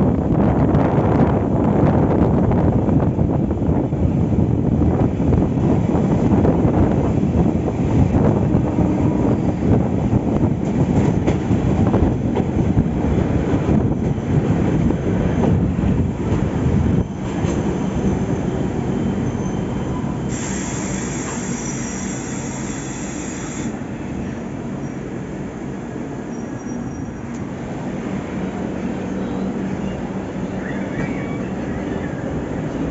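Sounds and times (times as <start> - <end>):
train rumbling on rails: 0.0 - 32.9
high wheel squeal: 17.0 - 23.7, 26.2 - 27.4, 29.2 - 32.5.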